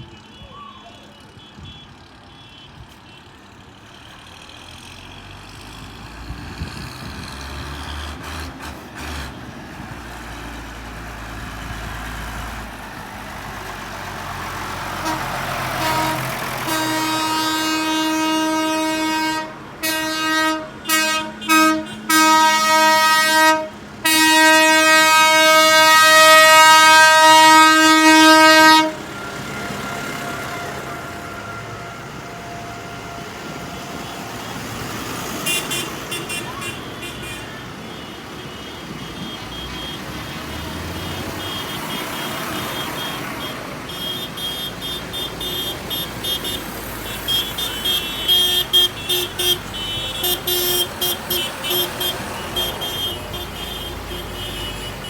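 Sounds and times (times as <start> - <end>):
tractors running: 1.2 - 55.0
single-note horn blasts: 15.0 - 29.4.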